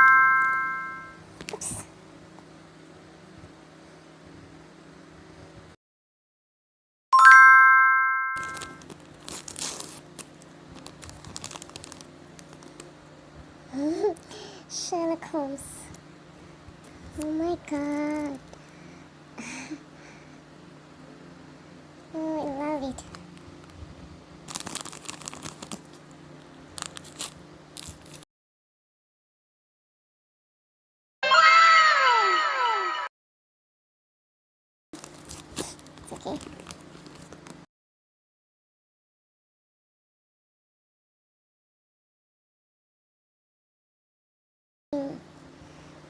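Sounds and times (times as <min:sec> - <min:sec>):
bright chime: 0:00.0 - 0:01.2, 0:07.2 - 0:08.8
packaging crinkling and tearing: 0:08.4 - 0:13.0, 0:17.8 - 0:18.5, 0:24.4 - 0:28.2, 0:35.0 - 0:37.6.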